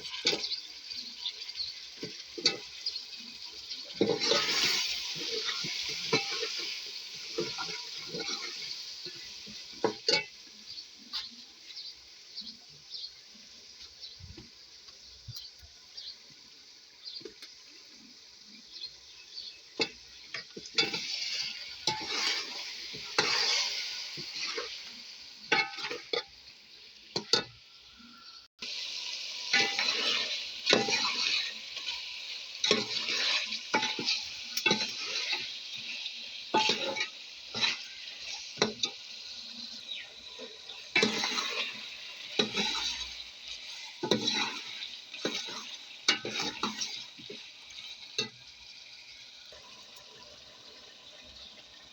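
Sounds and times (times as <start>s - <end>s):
food sizzling in a hot pan: 0.0s - 51.9s
utensil scraping a pan: 4.0s - 10.3s, 19.8s - 24.8s, 29.5s - 32.0s, 32.6s - 39.0s, 39.9s - 48.3s.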